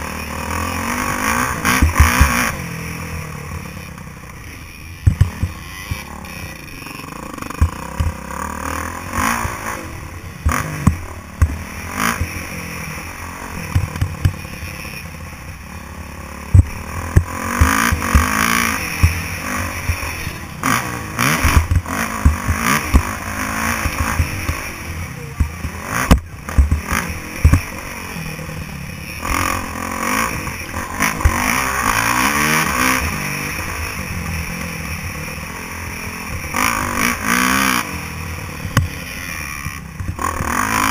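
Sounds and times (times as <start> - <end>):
motocross bike engine revving: 0.0 - 40.9
sharp knocks and clatter: 5.0 - 6.1, 7.5 - 8.2, 10.4 - 12.4, 21.4 - 23.2, 25.4 - 27.7.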